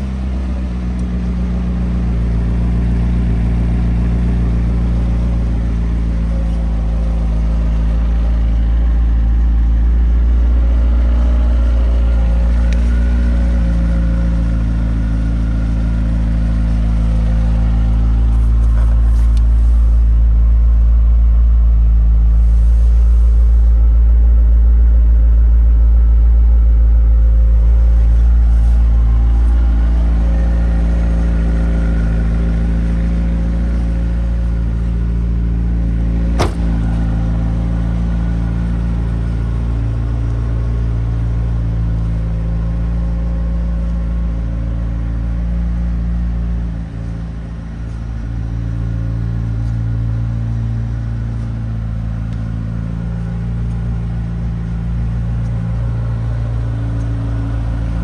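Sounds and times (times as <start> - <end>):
car engine idling: 0.0 - 58.0
sharp knock: 36.3 - 36.8.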